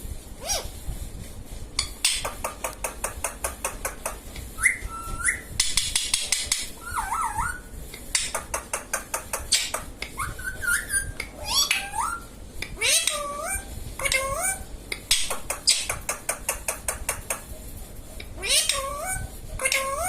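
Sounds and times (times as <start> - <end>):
parrot wavering whistles: 0.4 - 0.7, 4.6 - 5.7, 6.8 - 7.7, 10.2 - 13.7
parrot rapid clicking: 1.8 - 13.3, 14.9 - 17.5, 18.3 - 20.0.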